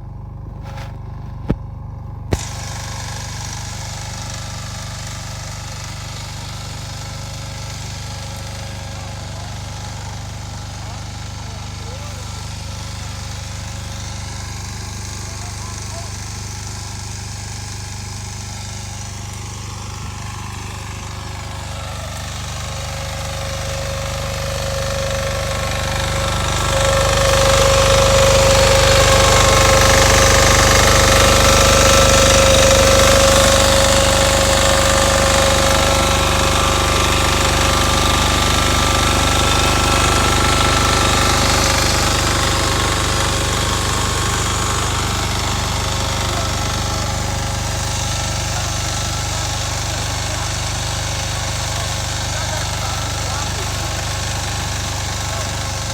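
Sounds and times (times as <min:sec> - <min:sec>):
walking tractor engine running: 0:00.0 - 0:55.9
steady whine: 0:08.3 - 0:48.8.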